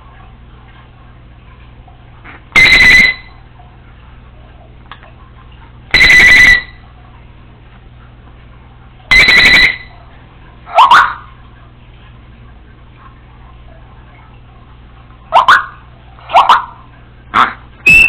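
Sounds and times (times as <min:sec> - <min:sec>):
parrot mimicking alarm beep: 0:02.6 - 0:03.4, 0:05.9 - 0:06.8, 0:09.1 - 0:10.0.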